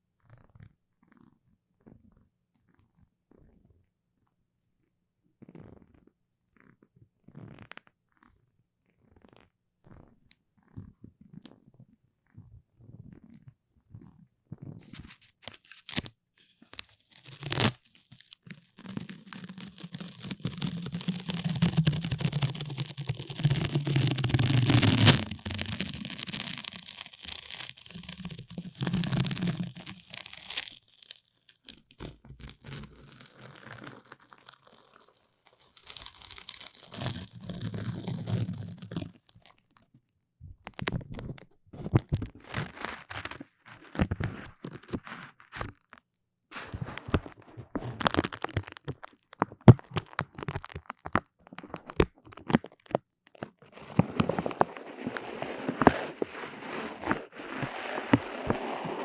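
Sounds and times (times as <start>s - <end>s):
sticky snaps and crackles: 16.7s - 39.6s, 46.7s - 55.9s
sticky tearing and peeling hiss: 16.8s - 39.6s.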